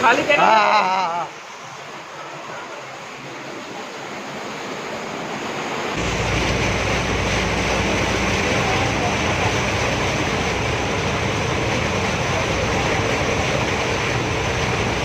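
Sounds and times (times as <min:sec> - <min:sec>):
heavy rain: 0:00.0 - 0:15.0
wind: 0:00.0 - 0:15.0
deep rumble: 0:06.0 - 0:15.0.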